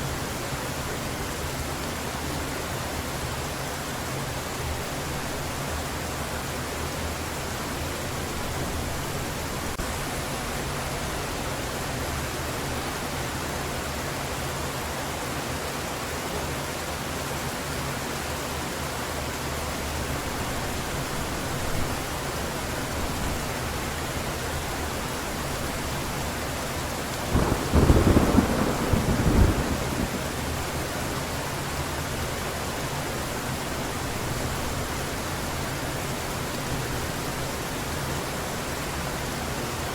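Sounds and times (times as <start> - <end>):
heavy rain hissing: 19.6 - 39.9
thunder rumbling: 27.3 - 30.8.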